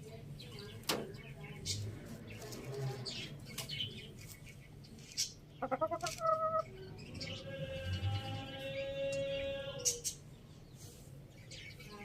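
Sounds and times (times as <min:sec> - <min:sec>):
hens clucking: 0:05.6 - 0:06.8.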